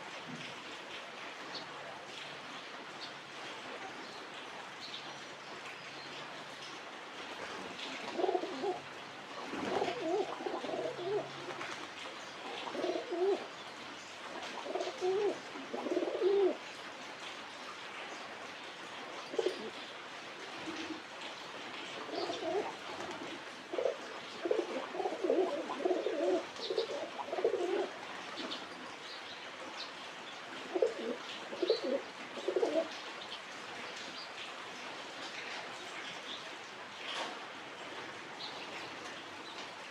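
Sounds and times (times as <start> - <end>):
pigeons cooing: 8.0 - 11.4, 12.6 - 13.5, 14.4 - 16.6, 19.3 - 19.8, 22.1 - 28.6, 30.6 - 33.0.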